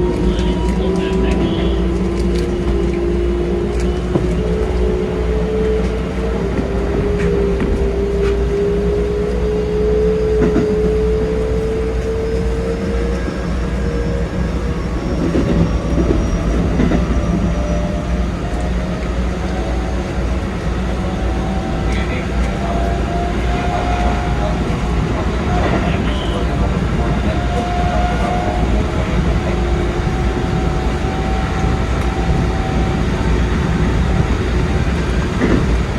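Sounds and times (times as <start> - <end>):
electric train motors whining: 0.0 - 35.9
wheels rumbling on rail: 0.0 - 35.9.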